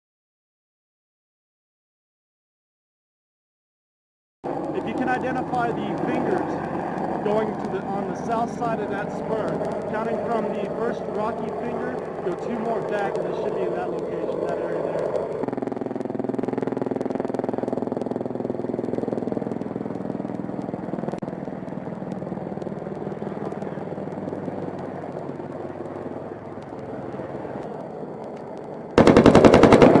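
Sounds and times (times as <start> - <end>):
helicopter engine and rotor drone: 4.4 - 30.0
chain gun firing burst: 29.0 - 30.0.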